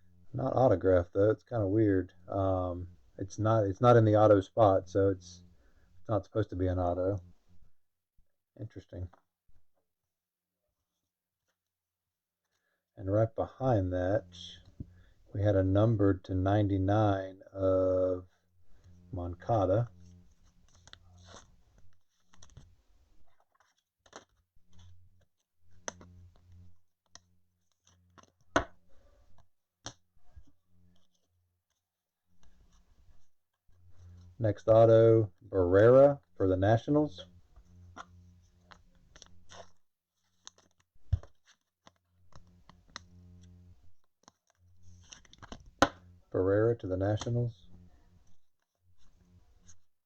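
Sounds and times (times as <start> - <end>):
faint low hum: 0.0 - 7.8, 12.6 - 31.5, 32.3 - 50.0
cards sliding rustles: 20.2 - 25.1, 27.7 - 30.4, 37.6 - 46.0
cards clicking and tapping: 24.0 - 24.4, 28.1 - 28.8, 45.1 - 46.0.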